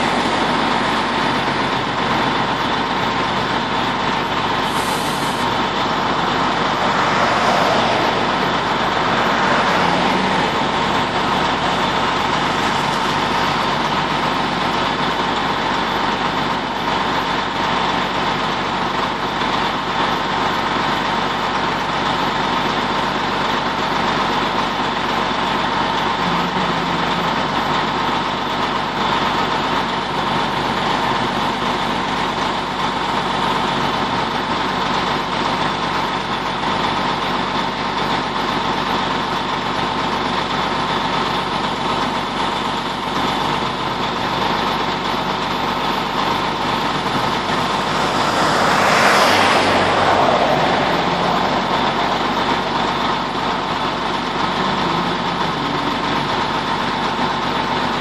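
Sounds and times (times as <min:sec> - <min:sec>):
vehicle passing by: 0:00.0 - 0:02.4, 0:04.6 - 0:14.0, 0:45.7 - 0:56.1
engine idling: 0:00.0 - 0:58.0.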